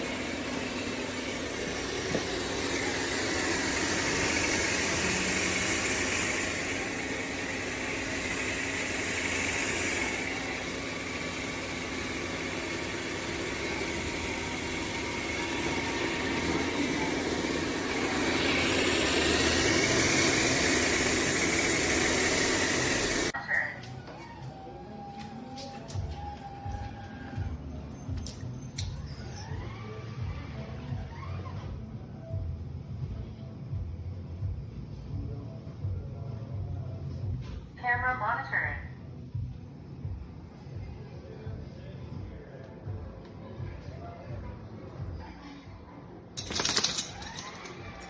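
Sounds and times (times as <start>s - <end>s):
robot vacuum running: 0.0s - 23.4s.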